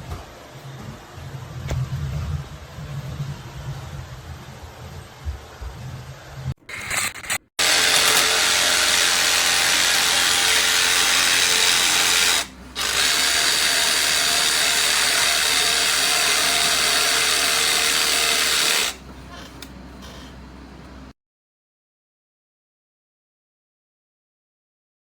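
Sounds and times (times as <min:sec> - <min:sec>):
jigsaw motor whine: 0:06.7 - 0:19.0.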